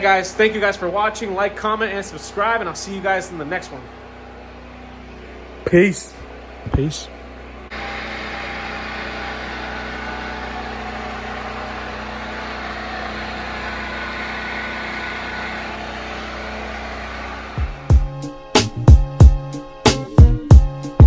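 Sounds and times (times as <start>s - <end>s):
steady engine hum: 0.0s - 18.5s.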